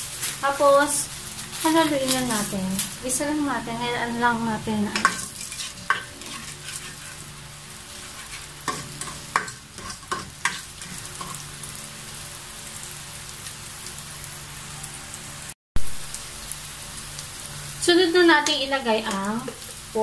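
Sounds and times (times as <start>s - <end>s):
onion sizzling in oil: 0.0s - 20.0s
utensil scraping a pot: 5.0s - 11.4s.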